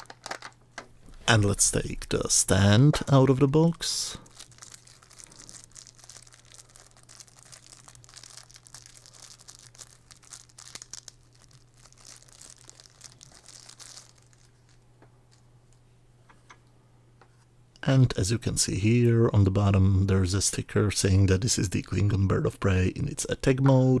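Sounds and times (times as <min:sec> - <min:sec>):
plastic packaging crinkling: 0:00.0 - 0:01.2, 0:03.3 - 0:15.5
faint low hum: 0:00.0 - 0:24.0.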